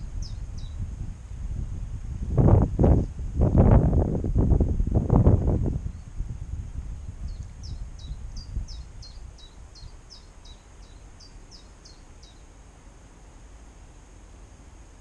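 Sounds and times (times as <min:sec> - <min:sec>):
small songbird singing: 0:00.0 - 0:00.9, 0:05.8 - 0:06.2, 0:07.0 - 0:12.5.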